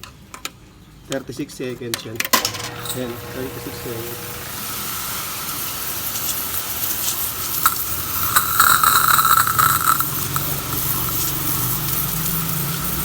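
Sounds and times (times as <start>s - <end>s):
pressure washer whine: 2.4s - 13.0s
water jet spraying with hiss: 2.7s - 13.0s.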